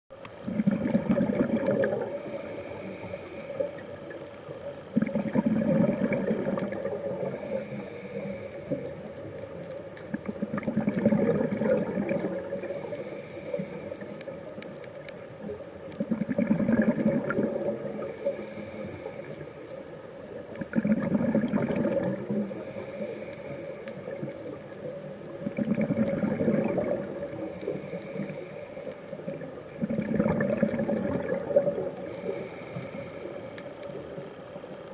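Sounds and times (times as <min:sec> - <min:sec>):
exhaled bubbles underwater: 0:00.3 - 0:34.9
inhaling through regulator hiss: 0:01.9 - 0:09.5, 0:11.0 - 0:15.1, 0:17.3 - 0:20.6, 0:22.2 - 0:24.8, 0:26.2 - 0:29.6, 0:30.7 - 0:34.2.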